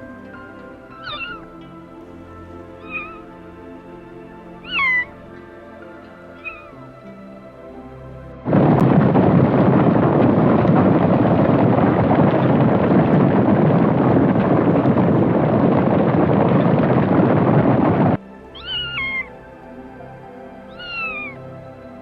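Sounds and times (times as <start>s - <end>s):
cat meowing: 1.0s - 1.4s, 2.8s - 3.2s, 4.7s - 5.1s, 6.4s - 6.7s, 18.6s - 19.3s, 20.7s - 21.4s.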